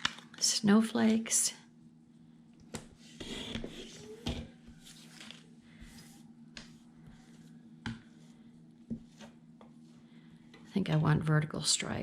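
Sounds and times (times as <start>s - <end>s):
paper rustling and sliding: 4.8s - 6.2s.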